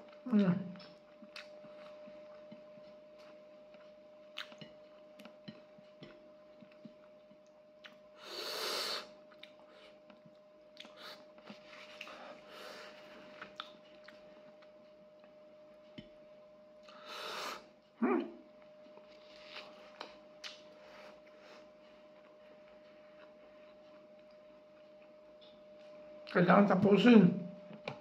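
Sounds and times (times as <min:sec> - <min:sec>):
faint steady hum: 0:00.0 - 0:28.0
chewing with wet mouth clicks: 0:00.8 - 0:08.0, 0:09.3 - 0:12.2, 0:13.4 - 0:15.3, 0:18.8 - 0:20.7.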